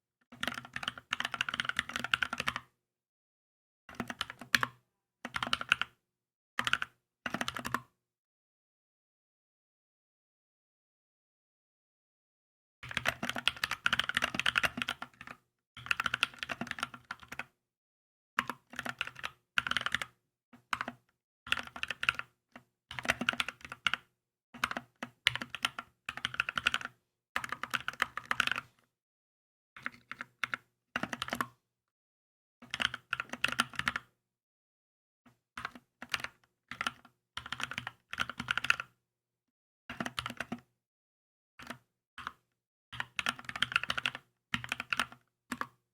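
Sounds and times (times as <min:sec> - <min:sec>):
typing on mechanical keyboard: 0:00.3 - 0:02.6, 0:03.9 - 0:06.0, 0:06.6 - 0:07.9, 0:12.9 - 0:17.5, 0:18.4 - 0:22.3, 0:22.9 - 0:28.7, 0:29.8 - 0:31.6, 0:32.6 - 0:34.1, 0:35.6 - 0:38.9, 0:39.9 - 0:40.7, 0:41.6 - 0:42.4, 0:43.0 - 0:45.8.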